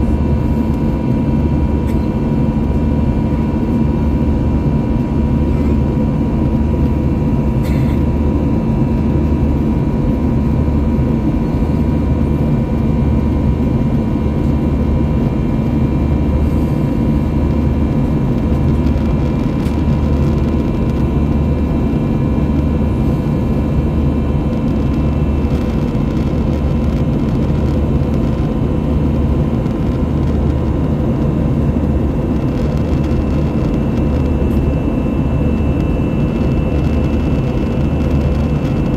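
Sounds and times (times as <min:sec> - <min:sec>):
aircraft cabin engine hum: 0:00.0 - 0:38.9
low pulsing throb: 0:08.2 - 0:38.9.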